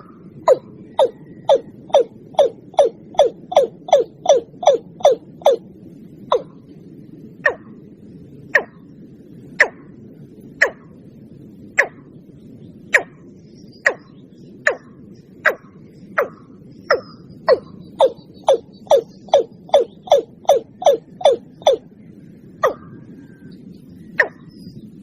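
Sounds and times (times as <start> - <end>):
watercock calls: 0.0 - 5.6, 6.3 - 6.5, 7.4 - 7.7, 8.6 - 8.8, 9.6 - 9.8, 10.6 - 10.8, 12.9 - 13.2, 13.8 - 14.1, 14.7 - 21.8, 22.6 - 22.9, 24.2 - 24.5.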